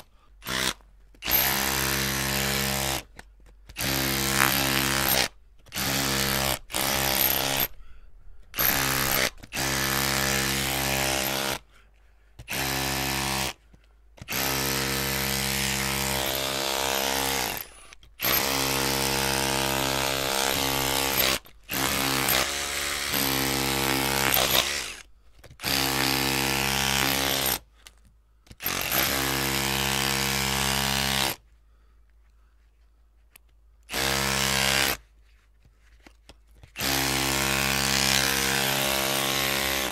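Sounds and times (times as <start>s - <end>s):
electric drill whirring: 0.4s - 3.0s, 3.8s - 7.8s, 8.6s - 11.6s, 14.2s - 27.6s, 28.6s - 31.3s, 33.9s - 35.0s, 36.8s - 39.9s.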